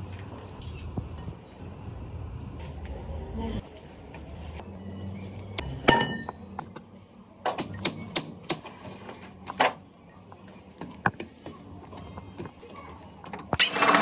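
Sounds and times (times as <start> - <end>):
metal tools knocking and clinking: 5.8 - 6.8.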